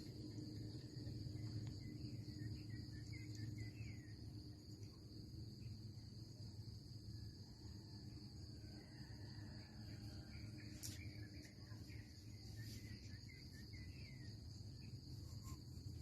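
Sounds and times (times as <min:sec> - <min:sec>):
faint low rumble: 0:00.0 - 0:06.8
bird chirps: 0:01.8 - 0:04.2.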